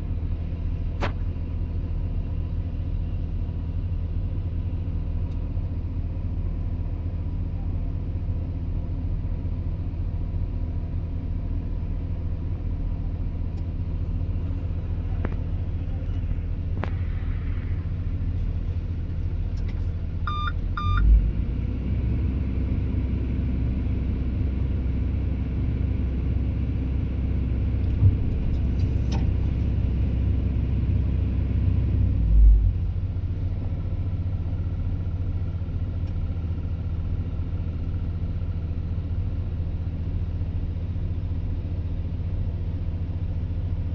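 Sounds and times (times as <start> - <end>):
diesel excavator engine: 0.0 - 43.9
short beeps: 20.3 - 21.1.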